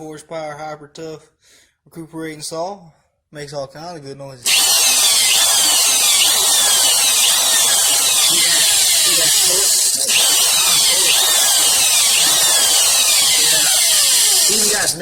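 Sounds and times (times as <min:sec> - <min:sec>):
reciprocating saw running: 0:04.5 - 0:15.0.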